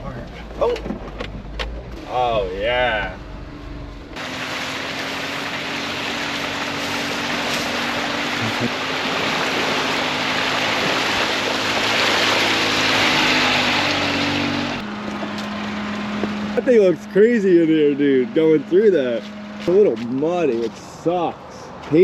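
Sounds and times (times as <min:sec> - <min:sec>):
truck engine running: 0:03.2 - 0:20.7
tyres on muddy ground: 0:04.2 - 0:22.0.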